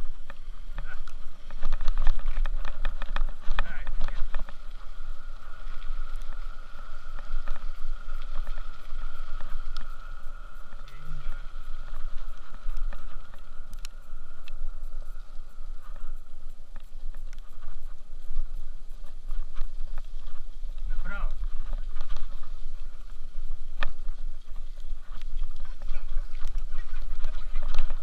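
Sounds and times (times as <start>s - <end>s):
light clicks: 0.0s - 28.0s
steady high hum: 0.0s - 28.0s
wind buffeting microphone: 0.0s - 28.0s.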